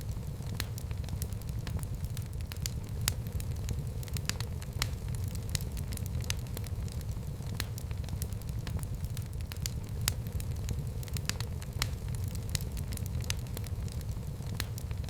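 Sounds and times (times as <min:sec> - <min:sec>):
fireplace fire crackling and popping: 0:00.0 - 0:15.0.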